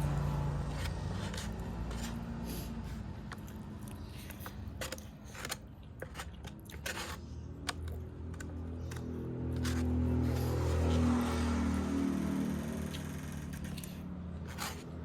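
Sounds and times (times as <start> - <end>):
chewing crunchy food: 0.0 - 11.6.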